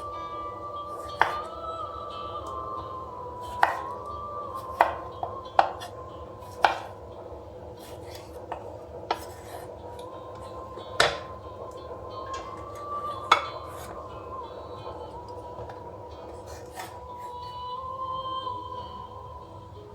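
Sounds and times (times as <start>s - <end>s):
utensils clicking against dishes: 0.9s - 1.6s, 3.3s - 17.7s.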